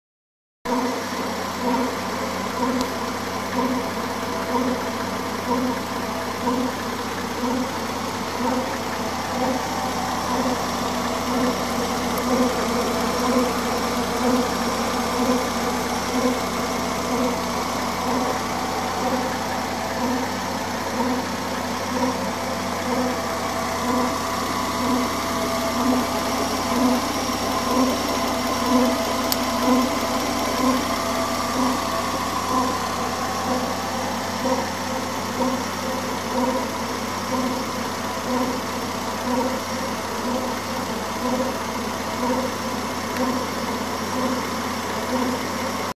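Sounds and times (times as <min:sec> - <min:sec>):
car engine idling: 0:00.7 - 0:45.9
rhythmic pulsing engine noise: 0:00.7 - 0:45.9.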